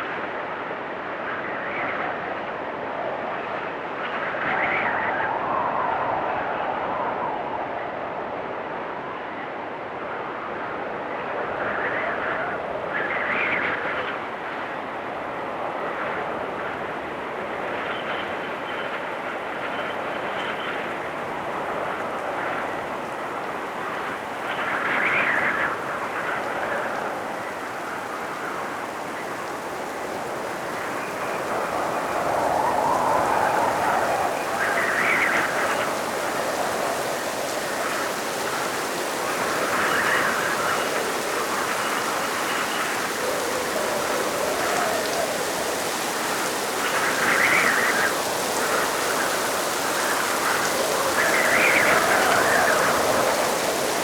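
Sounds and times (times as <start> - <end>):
rain hissing: 17.4 - 54.0.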